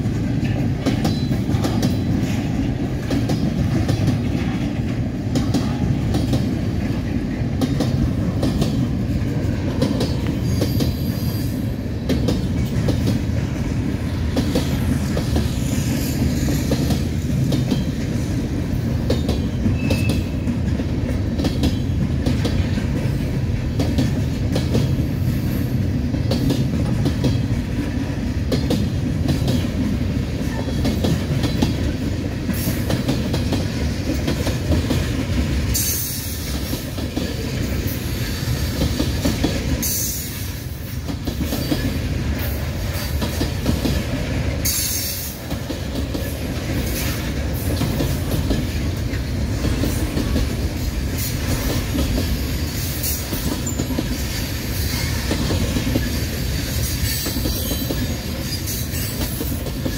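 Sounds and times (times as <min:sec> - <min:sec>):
train wheels rumbling on rails: 0:00.0 - 0:59.9
wheels clacking over rail joints: 0:00.0 - 0:59.9.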